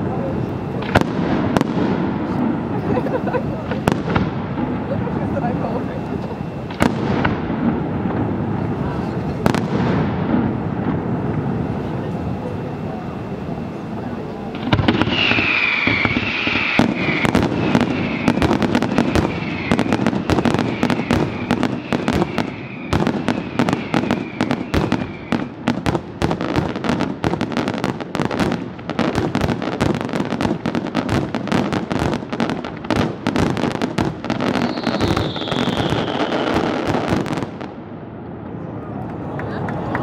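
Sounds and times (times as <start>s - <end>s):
fireworks bangs and crackles: 0.0s - 40.0s
high falling whistle: 15.0s - 18.4s, 34.6s - 36.5s.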